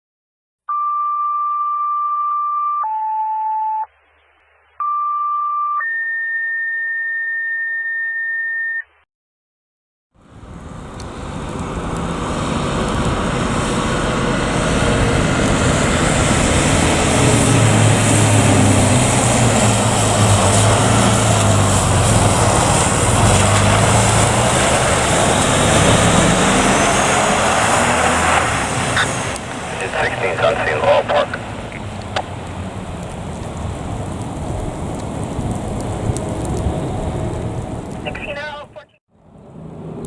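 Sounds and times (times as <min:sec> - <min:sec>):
radio paging tones: 0:00.7 - 0:03.9, 0:04.8 - 0:09.0, 0:29.0 - 0:31.9, 0:38.0 - 0:39.0
approaching vehicle: 0:10.2 - 0:38.0
low engine hum: 0:10.2 - 0:38.6.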